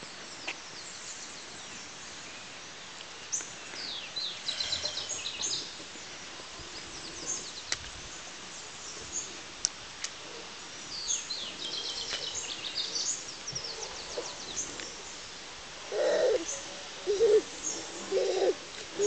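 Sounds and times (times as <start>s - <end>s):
birds chirping: 0.0s - 9.5s, 10.4s - 19.0s
bird cooing: 15.9s - 19.0s.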